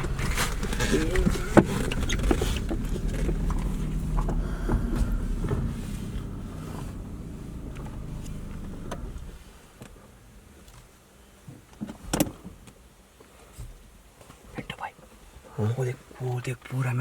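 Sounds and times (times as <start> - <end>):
car engine running low: 0.0 - 10.1.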